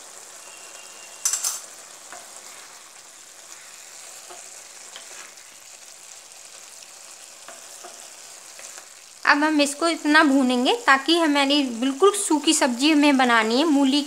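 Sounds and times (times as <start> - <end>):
food sizzling in a pan: 0.0 - 14.0
spatula stirring and scraping: 1.0 - 8.9.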